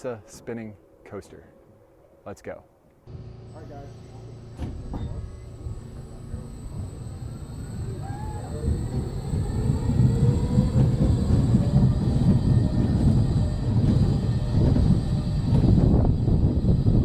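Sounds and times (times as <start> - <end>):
faint rising whine: 3.1 - 13.7
coaster car rumbling on steel track: 3.1 - 17.0.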